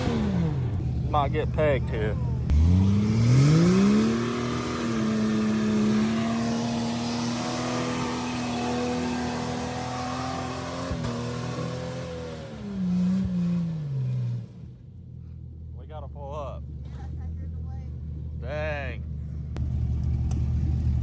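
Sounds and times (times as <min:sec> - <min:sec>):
engine revving at high revs: 0:00.0 - 0:00.8, 0:02.4 - 0:14.4.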